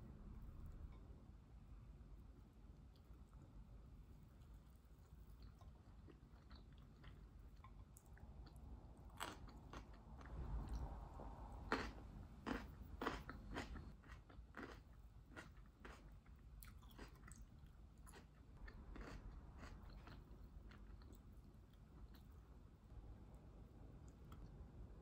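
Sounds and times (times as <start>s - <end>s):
biting and chewing crunchy food: 5.1s - 22.4s.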